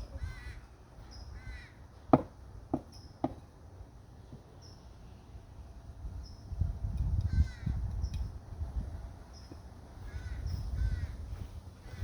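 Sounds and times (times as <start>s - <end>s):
crow cawing: 0.2s - 0.7s, 1.4s - 1.8s, 10.1s - 11.2s
sharp knocks: 2.1s - 3.4s.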